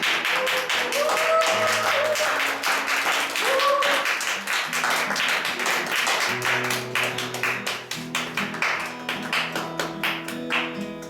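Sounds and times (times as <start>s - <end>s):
acoustic guitar strumming: 4.3s - 11.0s.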